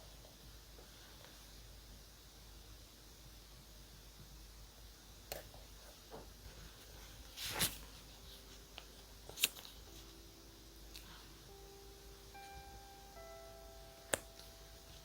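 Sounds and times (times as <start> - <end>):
paper rustle: 6.8 - 9.8.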